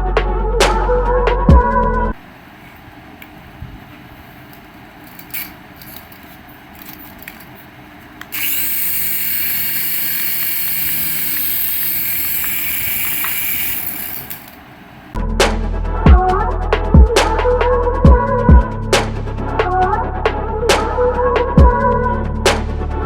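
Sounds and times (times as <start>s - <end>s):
small electric motor whining: 8.3s - 14.4s.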